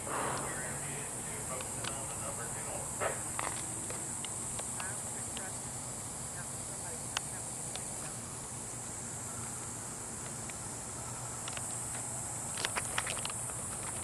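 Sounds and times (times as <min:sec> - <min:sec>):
footsteps: 0:00.0 - 0:02.2
high-pitched insect chorus: 0:00.0 - 0:14.0.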